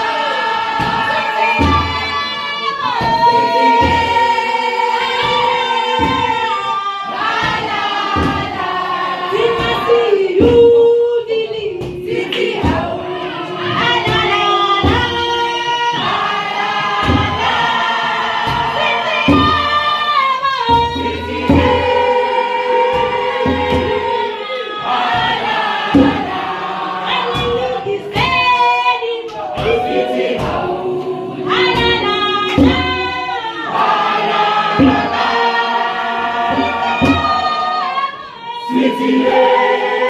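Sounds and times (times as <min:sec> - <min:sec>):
choir singing gospel: 0:00.0 - 0:40.0
steady low beat: 0:29.4 - 0:37.5.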